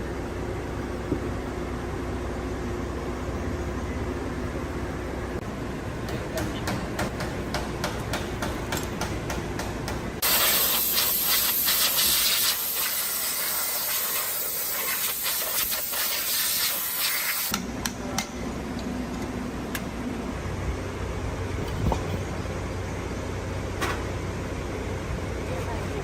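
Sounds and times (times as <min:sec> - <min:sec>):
low mechanical hum with ticks: 0:00.0 - 0:10.2, 0:17.5 - 0:26.0
pressurised spray hissing: 0:10.2 - 0:17.5.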